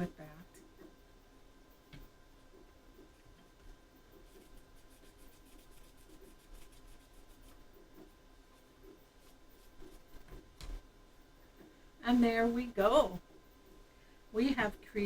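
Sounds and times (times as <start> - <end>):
faint steady hum: 0.0 - 15.0
cloth rubbing on wood: 4.1 - 10.5.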